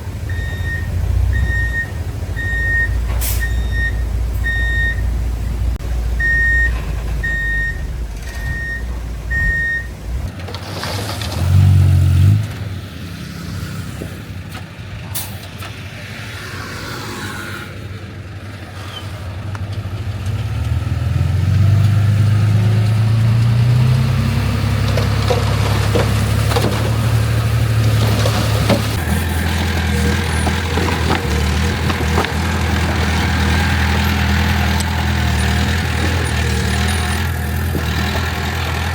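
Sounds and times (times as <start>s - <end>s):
diesel engines running: 0.0s - 38.9s
reversing alarm beeping: 0.3s - 5.1s, 6.2s - 10.0s, 28.9s - 31.3s.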